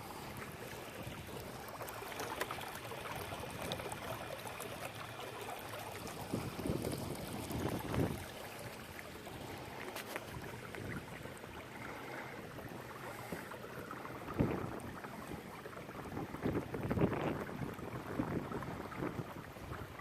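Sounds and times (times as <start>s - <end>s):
water splashing against kayak hull: 0.0s - 20.0s
wind noise on microphone: 6.1s - 8.3s, 14.3s - 14.9s, 16.0s - 20.0s.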